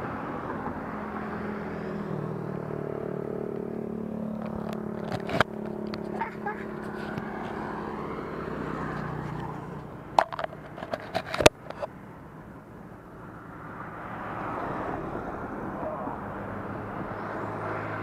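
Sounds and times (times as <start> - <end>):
road noise: 0.0 - 18.0
motorcycle engine running: 1.8 - 11.9
sharp clicks and knocks: 4.3 - 6.2, 9.2 - 11.9.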